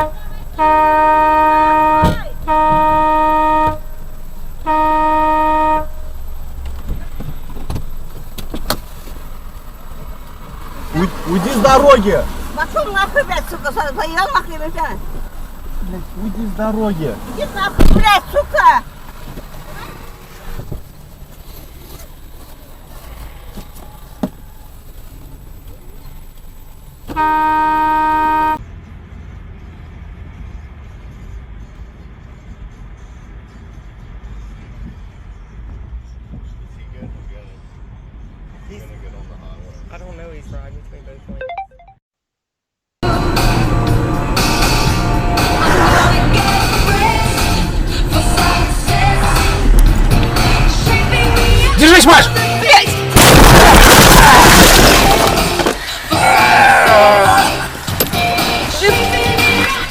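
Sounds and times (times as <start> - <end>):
car horn blast: 0.0 - 6.6, 27.1 - 28.6
road rumble from moving car: 0.0 - 41.4, 43.0 - 59.9.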